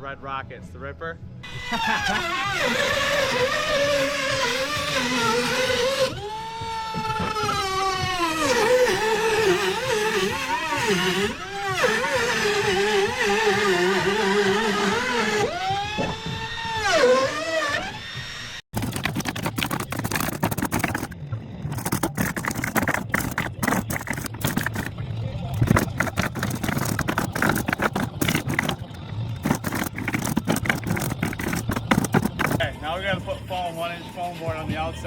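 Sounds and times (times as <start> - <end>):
power saw cutting wood: 1.5 - 21.2, 25.6 - 32.6.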